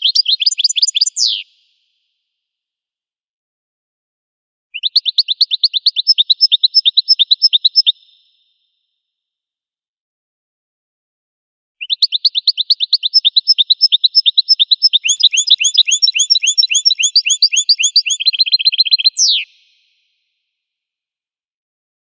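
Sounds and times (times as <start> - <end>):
finch trilling song: 0.0 - 1.5, 4.8 - 8.0, 11.8 - 20.0.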